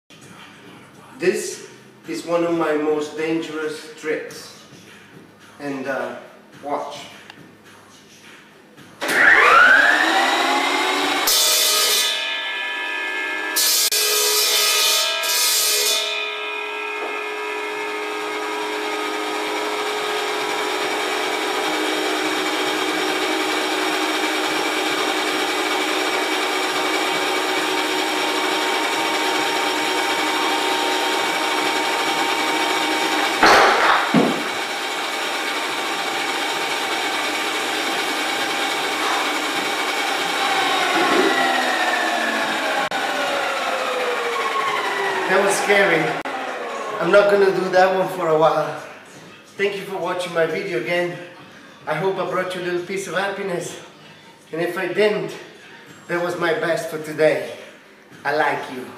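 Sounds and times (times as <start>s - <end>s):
circular saw whining: 9.0s - 49.0s.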